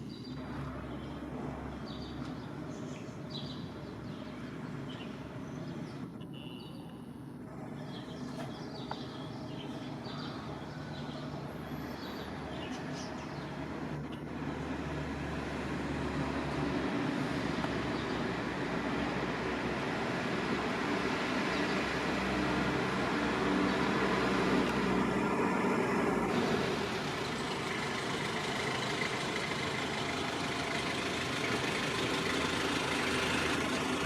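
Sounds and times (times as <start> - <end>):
sparrows chirping: 0.0 - 15.8, 17.5 - 24.9.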